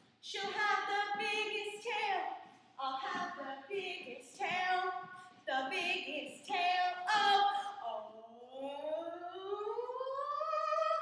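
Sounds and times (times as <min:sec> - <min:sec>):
person singing rising glide: 0:09.0 - 0:11.0.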